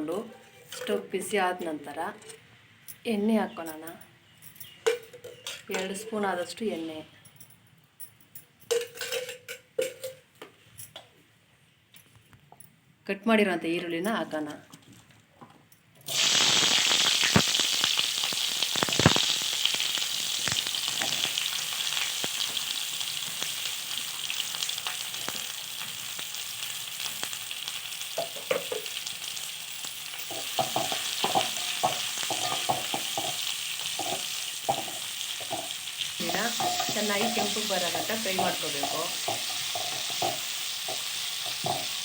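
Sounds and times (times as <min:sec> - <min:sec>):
onions sizzling in hot oil: 0:16.1 - 0:42.0
spatula scraping a pan: 0:30.3 - 0:42.0.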